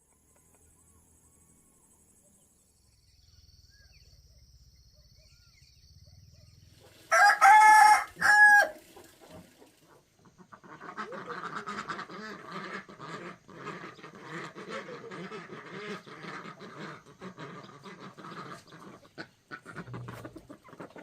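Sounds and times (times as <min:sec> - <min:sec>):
poultry flock calling: 0:06.8 - 0:21.0.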